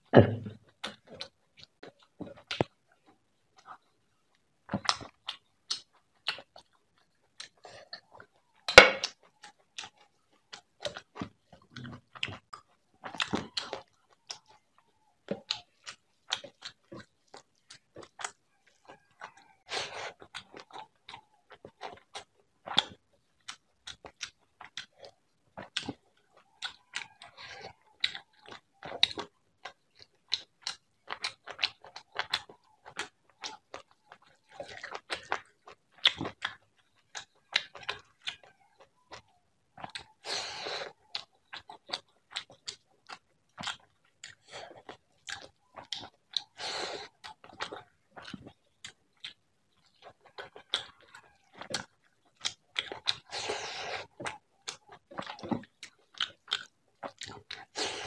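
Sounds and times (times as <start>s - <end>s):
chewing and mouth clicks: 0.6s - 58.0s.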